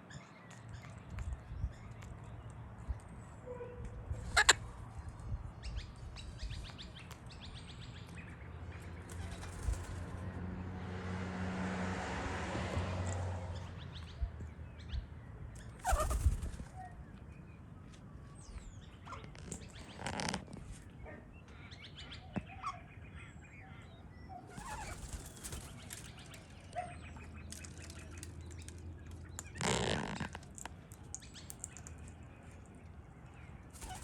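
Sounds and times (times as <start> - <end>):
parrot wings flapping: 9.1 - 10.2, 15.8 - 16.7, 24.6 - 26.3, 33.8 - 34.0.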